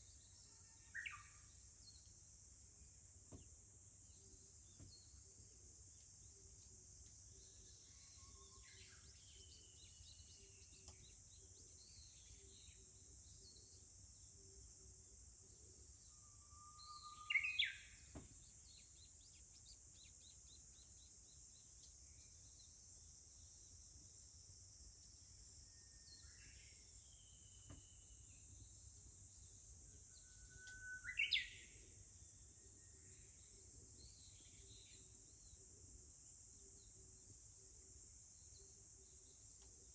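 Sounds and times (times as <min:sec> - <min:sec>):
warbler singing whistled song: 0:00.0 - 0:14.7, 0:15.4 - 0:37.2
cicadas droning: 0:00.0 - 0:39.9
faint calls of other birds: 0:15.7 - 0:20.6, 0:29.9 - 0:32.0.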